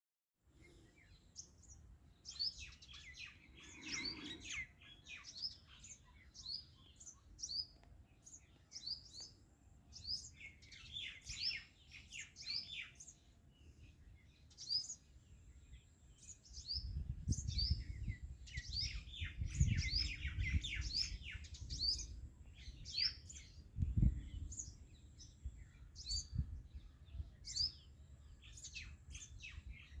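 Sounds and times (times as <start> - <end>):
small birds chirping: 0.6 - 30.0.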